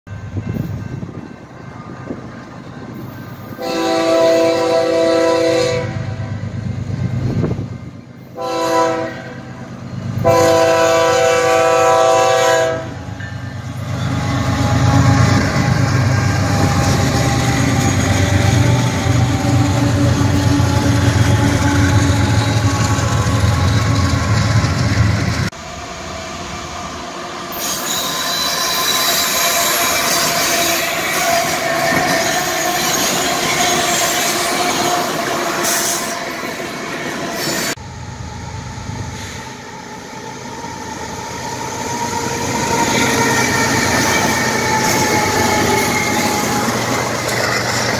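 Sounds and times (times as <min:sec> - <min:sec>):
locomotive horn blasts: 0:03.6 - 0:06.2, 0:08.4 - 0:09.6, 0:10.2 - 0:13.2
high-pitched wheel squeal: 0:27.5 - 0:36.4
wheels clattering on rail: 0:42.7 - 0:47.9.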